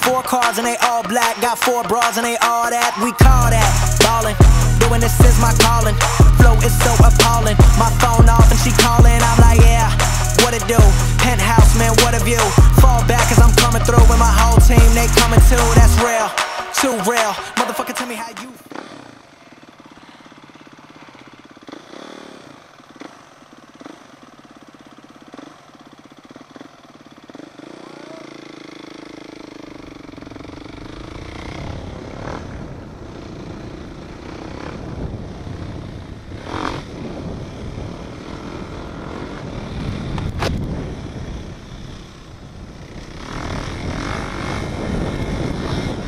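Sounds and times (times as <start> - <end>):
engine running: 0.0 - 46.0
low rumble of wind or road noise: 1.8 - 16.2, 29.1 - 46.0.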